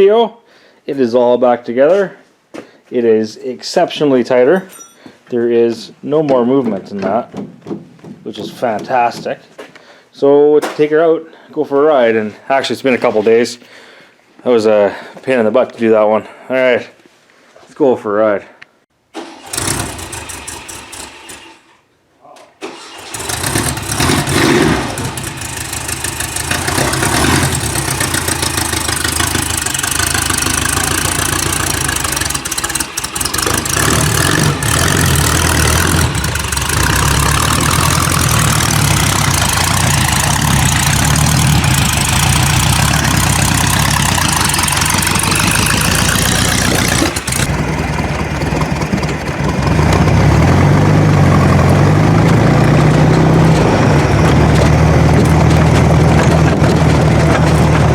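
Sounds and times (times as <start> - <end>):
buggy engine starting and revving: 19.2 - 21.8, 22.6 - 57.9.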